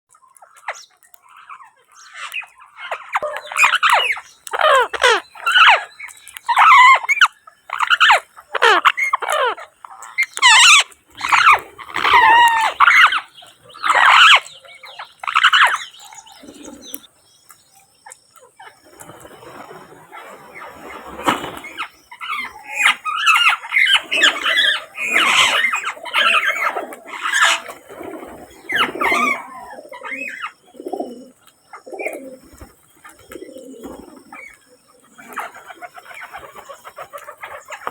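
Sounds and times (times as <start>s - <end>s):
parrot squawking: 2.1s - 5.9s, 6.5s - 14.4s, 15.0s - 15.9s.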